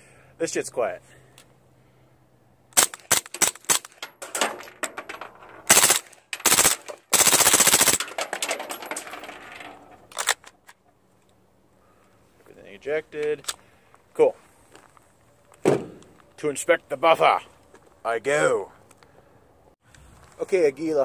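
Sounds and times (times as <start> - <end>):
suppressed automatic gunfire bursts: 5.7 - 8.0.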